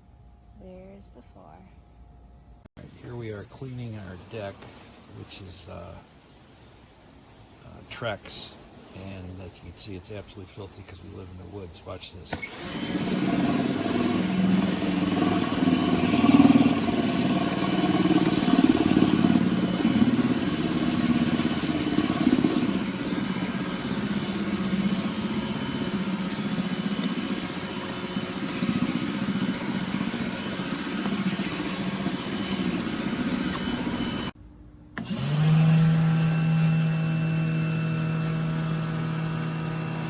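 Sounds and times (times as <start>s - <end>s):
pressure washer motor drone: 11.2s - 34.4s, 35.0s - 40.0s.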